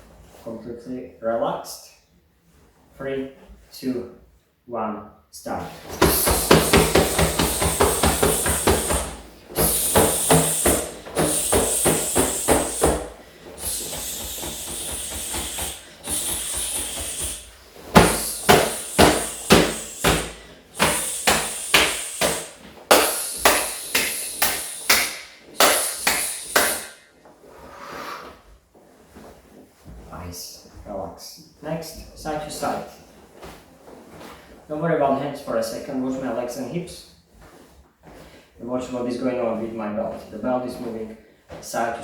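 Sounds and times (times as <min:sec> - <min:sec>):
hard breaths out: 0:05.8 - 0:28.4
hands slapping body: 0:05.9 - 0:27.0.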